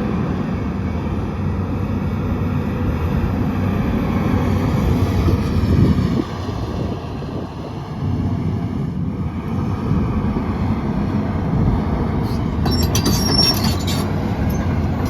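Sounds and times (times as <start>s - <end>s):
diesel excavator engine under load: 0.0s - 15.0s
track chains squeaking and clattering: 12.2s - 15.0s.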